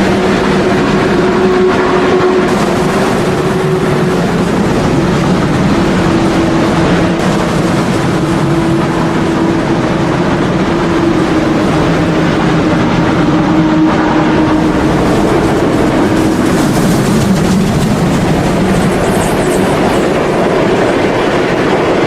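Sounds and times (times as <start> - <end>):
wheels rumbling on track: 0.0 - 22.0
model train motor hum: 7.5 - 21.4.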